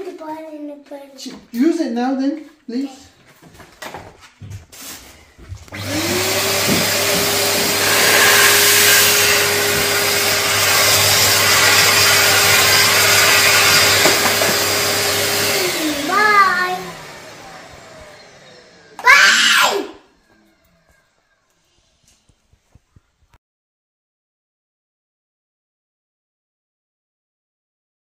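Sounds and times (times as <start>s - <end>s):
vacuum cleaner motor whine: 5.2s - 21.0s.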